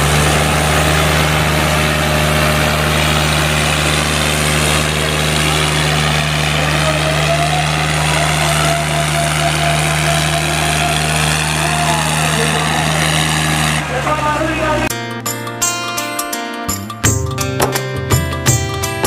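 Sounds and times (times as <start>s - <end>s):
diesel tractor engines droning: 0.0s - 14.9s.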